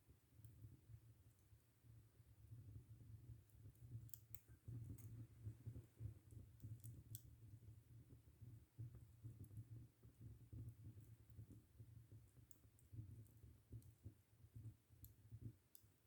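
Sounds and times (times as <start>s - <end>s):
fire crackles: 2.8s - 8.2s.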